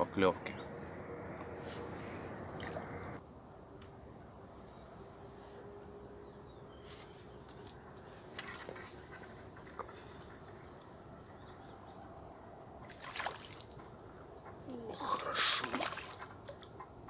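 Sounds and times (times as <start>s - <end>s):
rustle: 4.5s - 11.0s.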